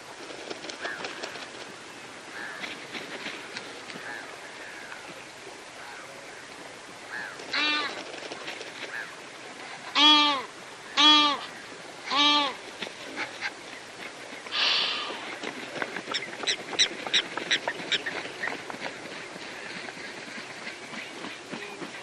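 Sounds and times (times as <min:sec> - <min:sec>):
bird calling: 0:07.1 - 0:08.1, 0:09.9 - 0:12.6, 0:16.0 - 0:22.0.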